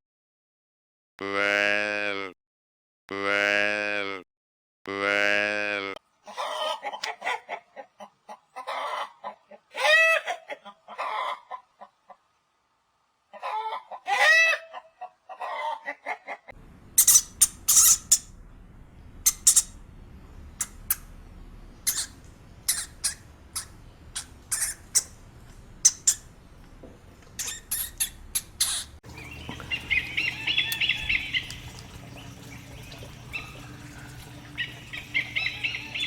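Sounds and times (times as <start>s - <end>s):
chicken clucking: 6.3s - 12.2s, 13.3s - 16.5s
high-pitched chirps or squeaks: 17.0s - 18.3s, 19.2s - 19.8s, 21.8s - 25.2s, 25.8s - 26.3s, 27.3s - 29.0s.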